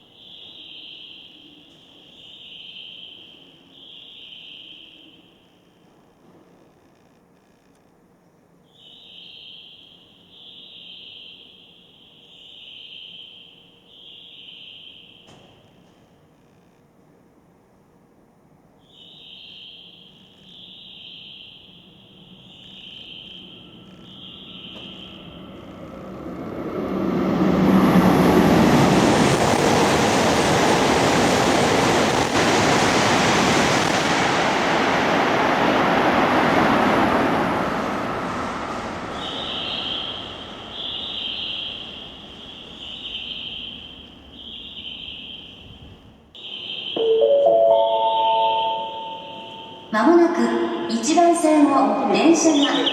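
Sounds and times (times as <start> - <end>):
crickets trilling: 0.0 - 7.7, 8.6 - 15.8, 18.8 - 26.6, 38.3 - 47.2, 47.8 - 49.9
train rumble: 21.8 - 52.9
station chime: 46.4 - 51.2.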